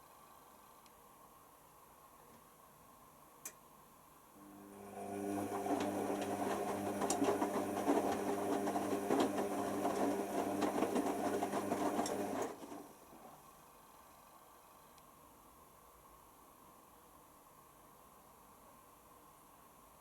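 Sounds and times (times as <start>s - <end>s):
washer dryer motor hum: 4.4s - 13.5s.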